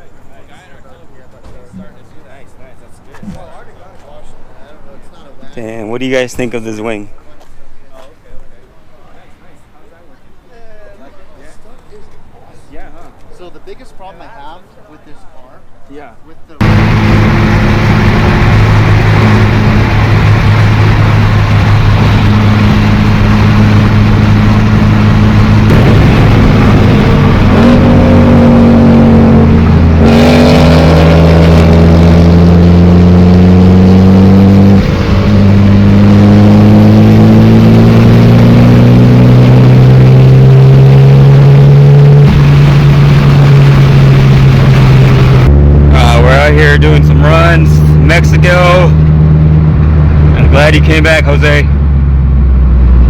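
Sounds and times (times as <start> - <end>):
car engine accelerating: 16.6 - 53.0.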